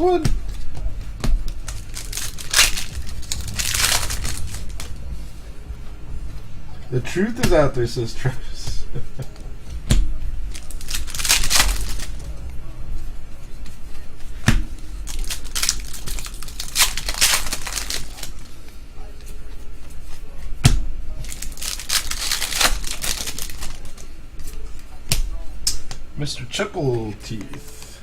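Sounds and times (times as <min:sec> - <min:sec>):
card pack wrappers crinkling: 0:01.4 - 0:05.0, 0:10.5 - 0:12.4, 0:15.0 - 0:18.6, 0:21.2 - 0:24.1.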